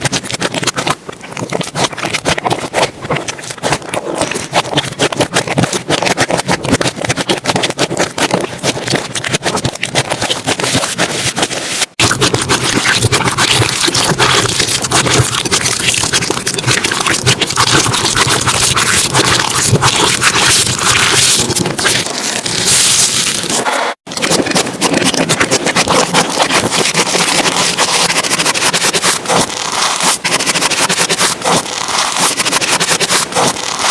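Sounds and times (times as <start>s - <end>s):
slime squished by hand: 0.0s - 33.9s.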